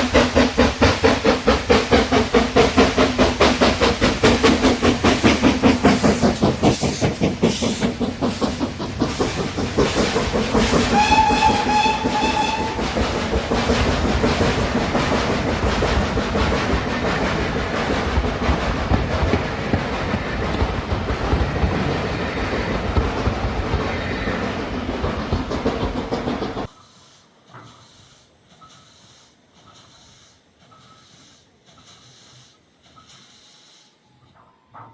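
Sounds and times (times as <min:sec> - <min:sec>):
locomotive running rumble: 0:00.0 - 0:26.7
steam locomotive exhaust beats: 0:00.0 - 0:34.2
steam whistle blast: 0:10.8 - 0:13.0.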